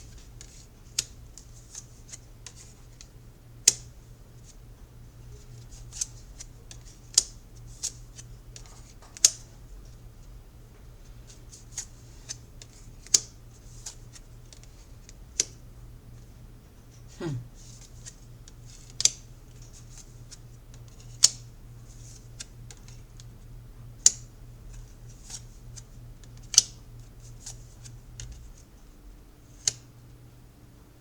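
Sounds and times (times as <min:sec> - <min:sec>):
low steady hum: 0:00.0 - 0:31.0
cards clicking and snapping: 0:18.9 - 0:20.0.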